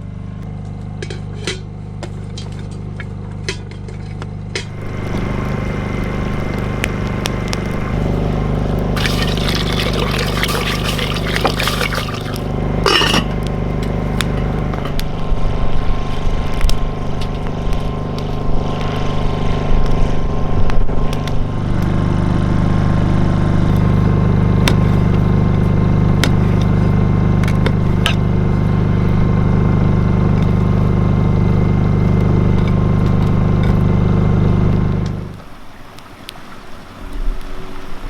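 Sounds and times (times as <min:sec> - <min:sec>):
low mechanical hum: 0:00.0 - 0:38.0.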